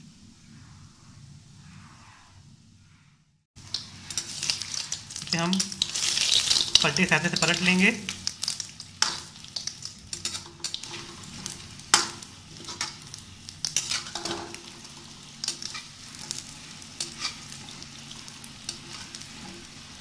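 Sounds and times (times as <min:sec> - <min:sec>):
pakoras sizzling in oil: 0:03.6 - 0:20.0
metal spatula scraping pan: 0:10.1 - 0:20.0.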